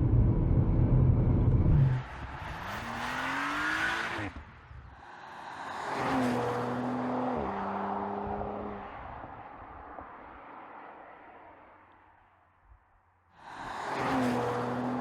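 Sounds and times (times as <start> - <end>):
car engine accelerating: 0.0 - 4.4.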